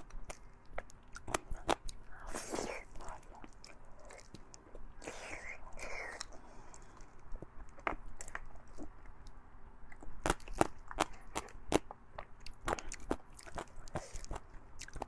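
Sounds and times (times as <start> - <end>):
close chewing: 9.9 - 15.0.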